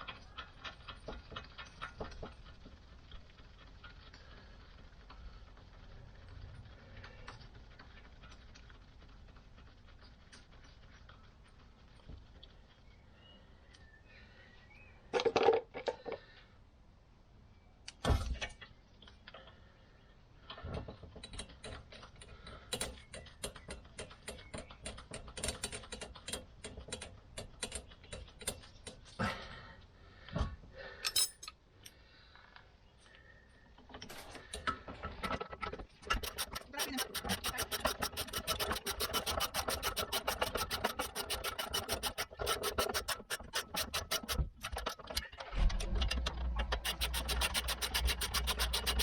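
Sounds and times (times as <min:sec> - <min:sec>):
metal tools clinking: 0:31.0 - 0:31.6
ratchet spanner clicking: 0:36.0 - 0:45.2, 0:46.6 - 0:49.0.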